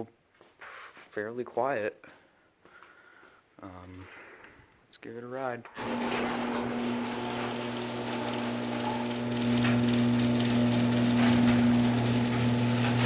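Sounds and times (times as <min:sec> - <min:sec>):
garage door opener motor hum: 0:05.8 - 0:13.0.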